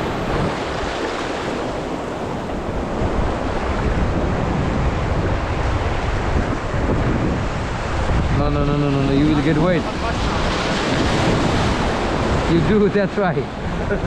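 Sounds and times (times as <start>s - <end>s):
rushing river whitewater: 0.0s - 14.0s
wind buffeting microphone: 0.0s - 14.0s.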